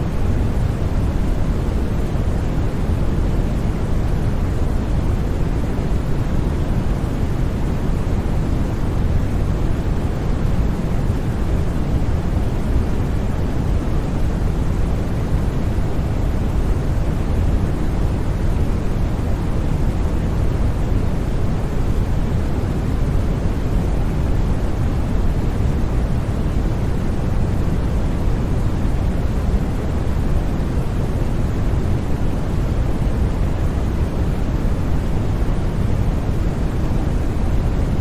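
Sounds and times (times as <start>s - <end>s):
deep rumbling white noise: 0.0s - 38.0s.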